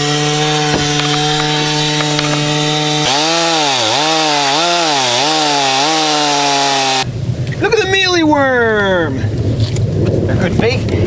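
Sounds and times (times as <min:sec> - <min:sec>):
chainsaw cutting wood: 0:00.0 - 0:07.1.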